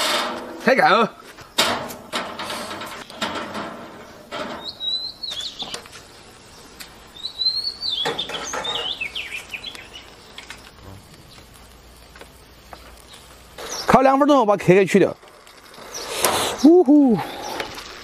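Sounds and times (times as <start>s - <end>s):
small bird chirping: 4.6s - 11.8s, 12.4s - 14.2s, 15.8s - 17.6s.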